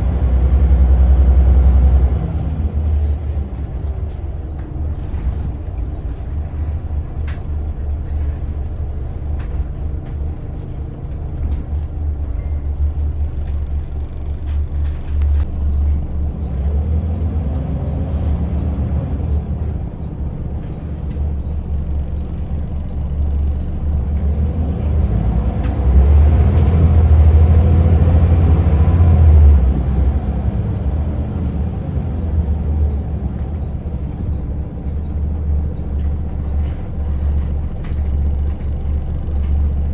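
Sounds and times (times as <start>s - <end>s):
bus diesel engine rumbling: 0.0s - 39.9s.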